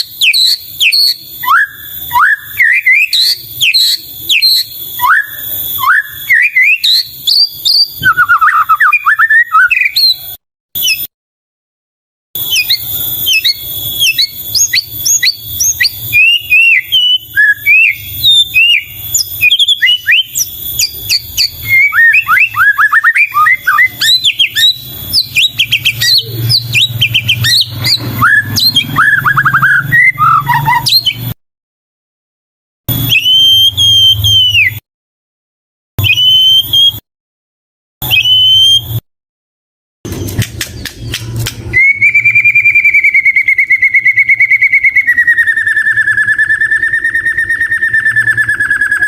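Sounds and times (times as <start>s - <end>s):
songbird singing: 0.0s - 10.3s, 12.4s - 31.3s
long wavering whistle: 0.0s - 11.0s, 12.4s - 31.4s, 32.9s - 34.8s, 36.0s - 37.0s, 38.0s - 39.0s, 41.7s - 49.0s.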